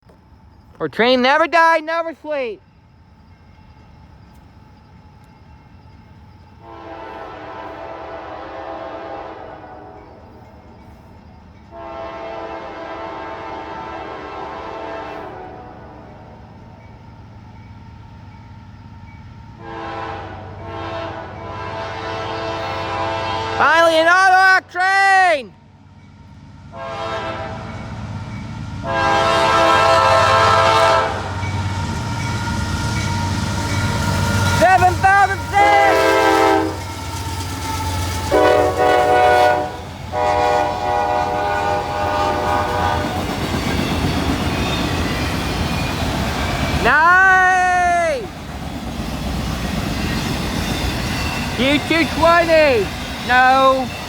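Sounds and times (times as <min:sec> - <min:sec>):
low rumble of approaching train: 0:00.0 - 0:54.0
locomotive air horn blasts: 0:06.6 - 0:10.1, 0:11.7 - 0:15.9, 0:19.6 - 0:23.9, 0:26.8 - 0:27.7, 0:28.8 - 0:31.4, 0:34.6 - 0:36.9, 0:38.2 - 0:43.2.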